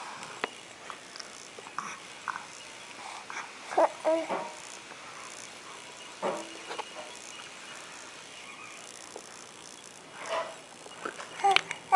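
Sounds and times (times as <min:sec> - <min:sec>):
faint room hiss: 0:00.0 - 0:11.9
baby vocal sounds: 0:03.3 - 0:04.6, 0:11.4 - 0:11.9.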